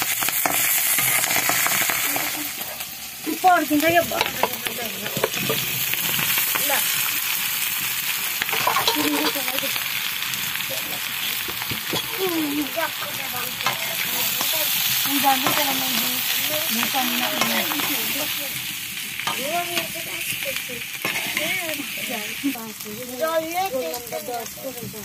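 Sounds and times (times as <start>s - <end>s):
potatoes sizzling in a pan: 0.0s - 25.0s
spoon scraping a pan: 3.8s - 7.1s, 8.4s - 9.8s, 11.0s - 12.3s, 12.9s - 22.4s.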